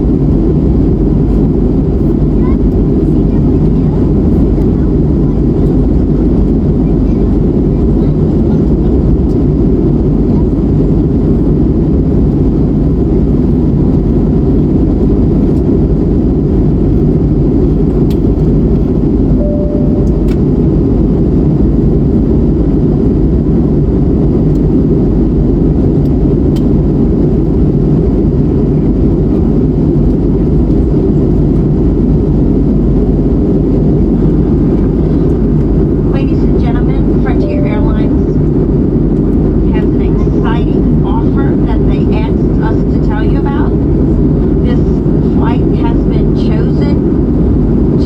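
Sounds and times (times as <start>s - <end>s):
airplane cabin engine roar: 0.0s - 48.0s
faint tone: 19.4s - 20.6s, 37.0s - 38.4s.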